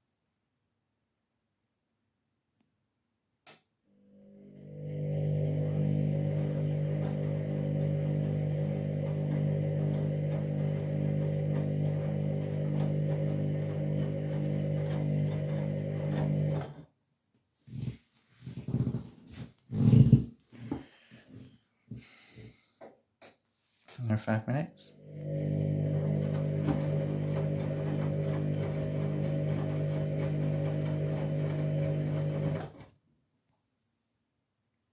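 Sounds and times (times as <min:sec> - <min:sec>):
washing machine humming: 0:04.0 - 0:16.8, 0:24.9 - 0:32.9.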